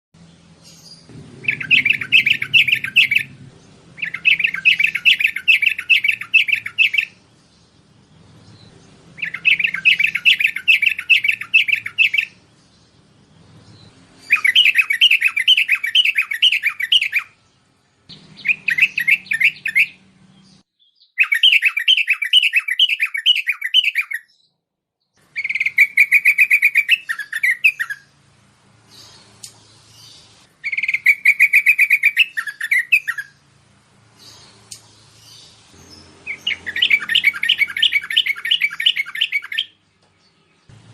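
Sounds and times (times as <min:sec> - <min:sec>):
bird chirping song: 0:00.2 - 0:40.9.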